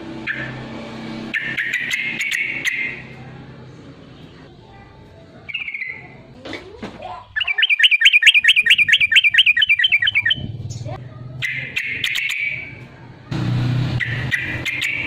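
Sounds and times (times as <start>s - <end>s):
bird singing: 1.3s - 3.2s, 5.5s - 6.2s, 7.0s - 12.8s, 14.0s - 15.0s.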